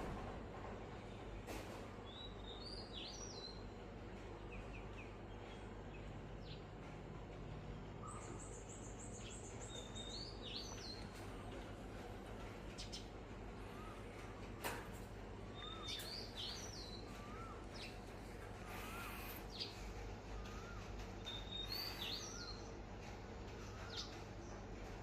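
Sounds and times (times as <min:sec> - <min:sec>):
high bird trill: 0:15.5 - 0:22.8
bird singing whistled notes: 0:20.5 - 0:22.7.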